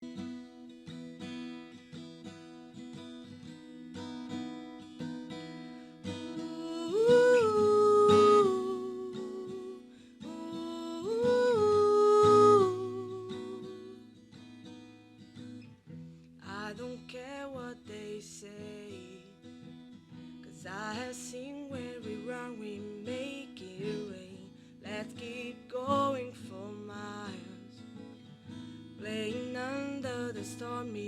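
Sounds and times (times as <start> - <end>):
acoustic guitar picking: 0.0 - 31.0
person humming: 6.2 - 14.0.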